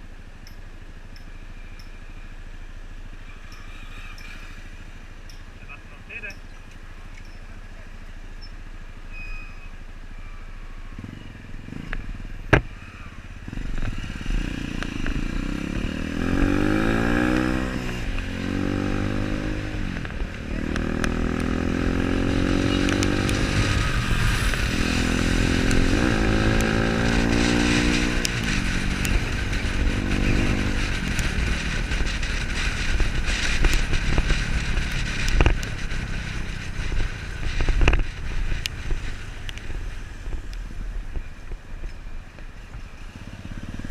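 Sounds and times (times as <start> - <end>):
motorcycle engine accelerating: 10.2 - 43.9.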